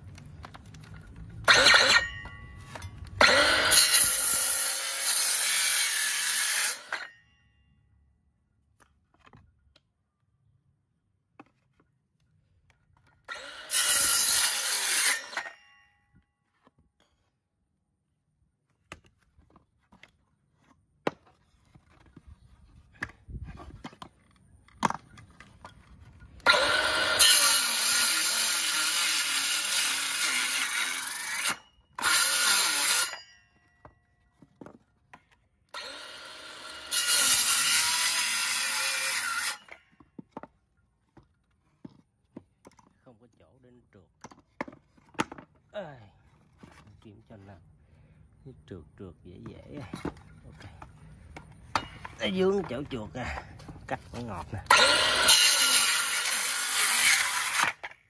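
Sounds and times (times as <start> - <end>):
cordless saw cutting wood: 1.4 - 2.2, 3.2 - 7.1, 13.2 - 15.6, 26.4 - 33.3, 35.7 - 39.9, 54.6 - 58.0.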